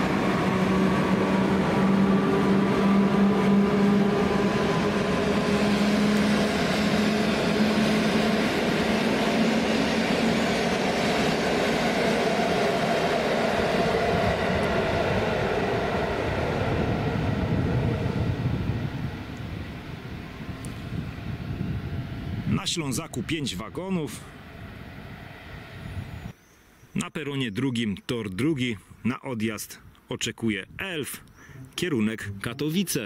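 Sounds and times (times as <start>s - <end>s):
train wheels rolling on rails: 0.0s - 21.0s.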